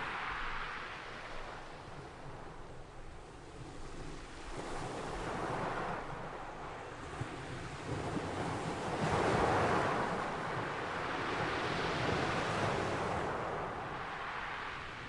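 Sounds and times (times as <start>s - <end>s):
waves breaking and washing in: 0.0s - 15.0s
wind rumble on microphone: 0.0s - 15.0s.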